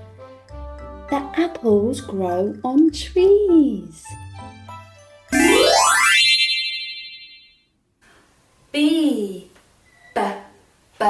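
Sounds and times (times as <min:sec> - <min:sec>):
soft children's music: 0:00.0 - 0:07.0
cartoon whistle rising swoop: 0:05.4 - 0:07.3.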